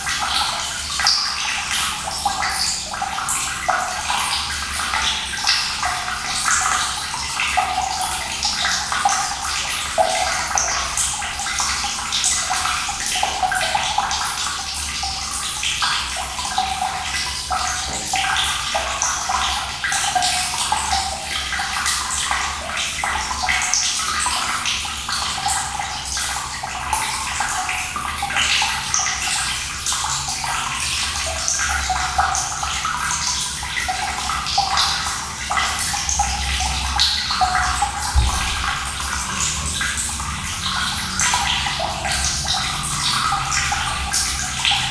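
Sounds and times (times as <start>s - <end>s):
running water splashing: 32.0s - 44.9s.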